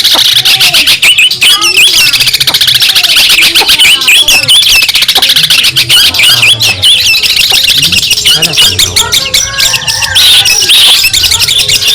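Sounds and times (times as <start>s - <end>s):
bird chattering song: 0.0s - 11.9s.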